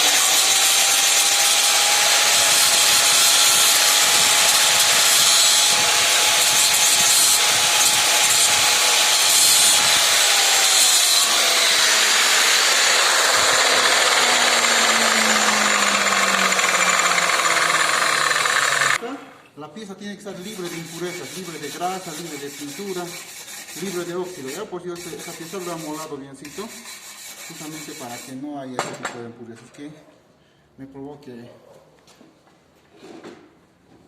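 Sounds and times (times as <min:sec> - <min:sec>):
angle grinder grinding steel: 0:00.0 - 0:19.0.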